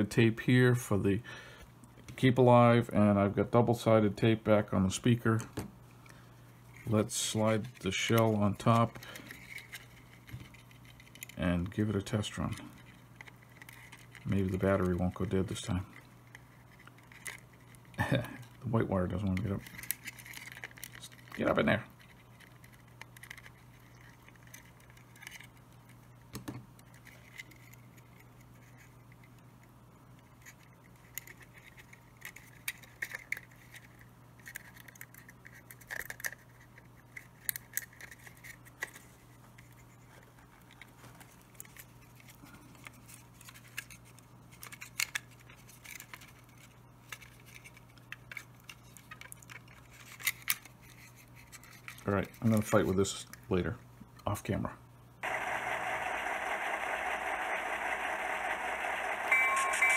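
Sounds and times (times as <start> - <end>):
faint low hum: 0.0 - 59.9
plastic model parts clicking: 30.4 - 39.0.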